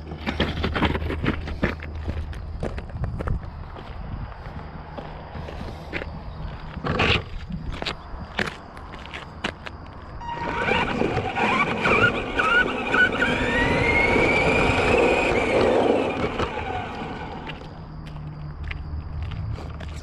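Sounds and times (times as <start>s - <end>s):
tyre and drivetrain noise: 0.0s - 20.0s
electric motor whining: 10.2s - 17.8s.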